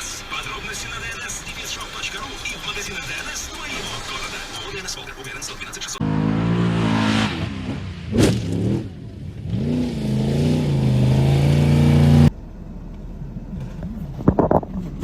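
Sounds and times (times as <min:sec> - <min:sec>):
car engine revving: 0:00.0 - 0:12.4
sharp crack: 0:08.1 - 0:08.8.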